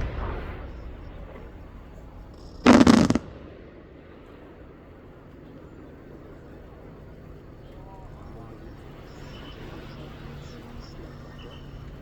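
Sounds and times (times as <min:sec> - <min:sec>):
sharp firework bangs: 0:00.0 - 0:04.7
firework shell burst rumbling: 0:00.0 - 0:04.8.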